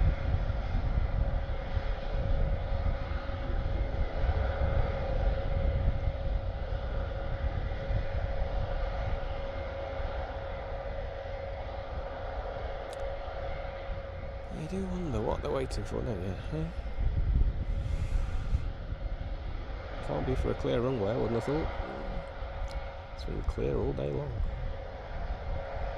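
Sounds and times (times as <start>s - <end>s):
turboprop engines idling: 0.0s - 25.9s.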